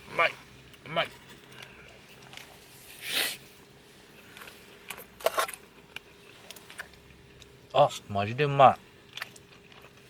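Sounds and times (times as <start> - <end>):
slurp: 2.8 - 3.4.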